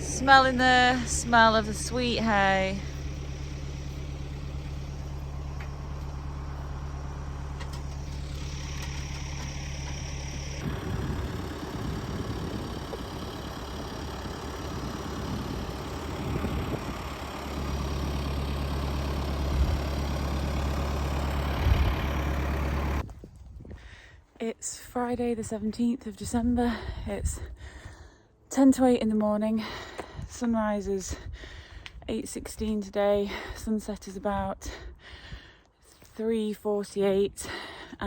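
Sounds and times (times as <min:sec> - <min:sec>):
engine idling: 0:00.0 - 0:23.1.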